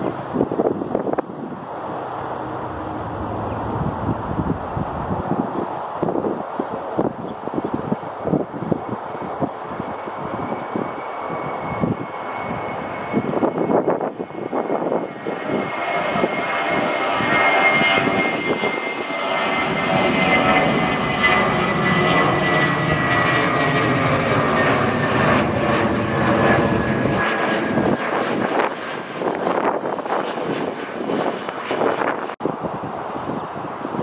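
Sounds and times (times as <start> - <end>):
airliner engines roaring: 0.0 - 34.0.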